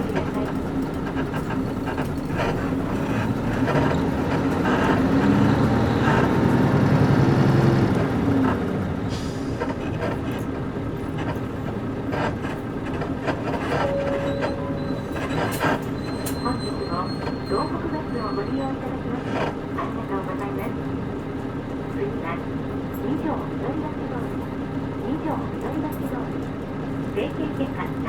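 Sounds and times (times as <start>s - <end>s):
suspension knocking and creaking: 0.0s - 7.0s, 9.6s - 17.7s
bus body rattling: 0.0s - 28.0s
bus engine accelerating: 0.0s - 28.0s.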